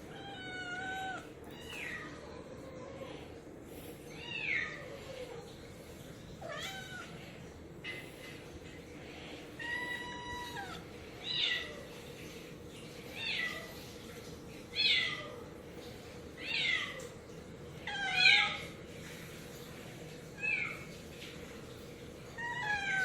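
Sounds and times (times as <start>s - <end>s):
cat meowing: 0.1s - 3.2s, 6.4s - 7.2s, 9.6s - 11.8s, 22.4s - 23.0s.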